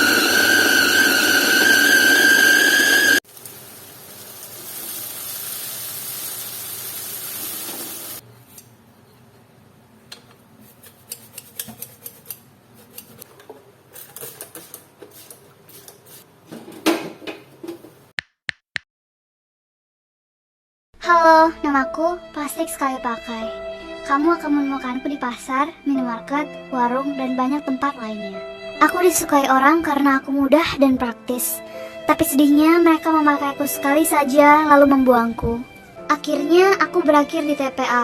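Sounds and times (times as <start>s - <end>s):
loud high tone: 0.0s - 3.2s.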